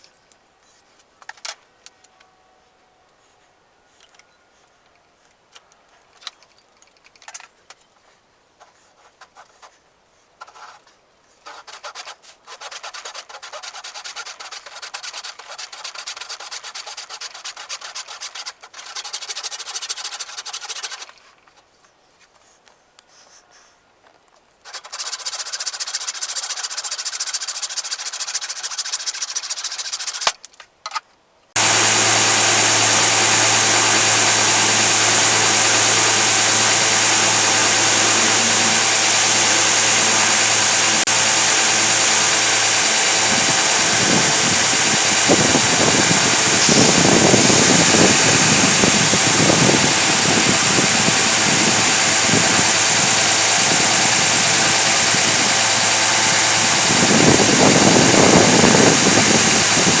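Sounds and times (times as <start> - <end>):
shop machine humming: 24.7 - 30.4, 31.6 - 60.0
irregular machine surges: 31.6 - 59.9.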